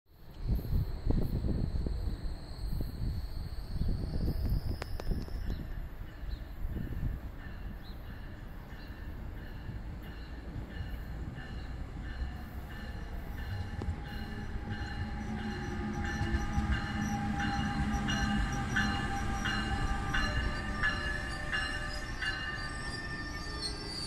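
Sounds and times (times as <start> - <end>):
electric locomotive whine: 0.2 - 24.0
train low rumble: 0.2 - 24.0.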